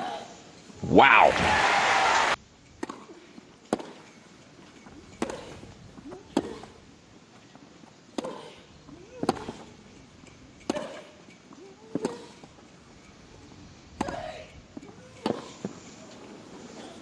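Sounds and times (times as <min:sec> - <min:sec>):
player grunting: 0:00.8 - 0:01.8
racquets striking tennis ball: 0:03.7 - 0:04.0.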